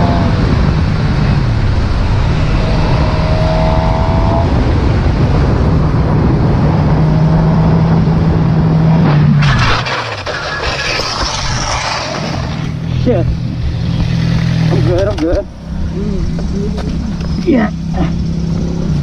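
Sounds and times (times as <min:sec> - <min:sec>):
motorcycle engine at speed: 0:00.0 - 0:09.4, 0:12.2 - 0:19.0
road and wind noise: 0:00.0 - 0:19.0
motorcycle crashing clattering scrape: 0:09.1 - 0:12.8.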